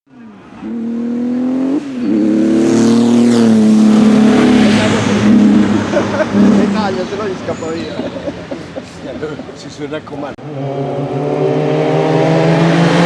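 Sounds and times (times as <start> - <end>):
racing car engine accelerating: 0.4 - 7.4, 10.4 - 13.0.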